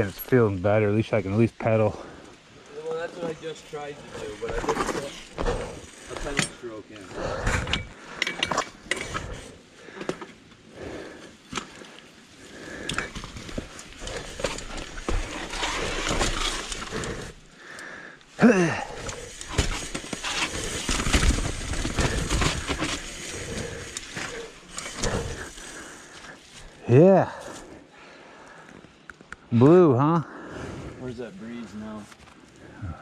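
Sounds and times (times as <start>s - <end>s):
mountain bike rattling on rocky trail: 2.8s - 17.6s, 18.4s - 27.6s.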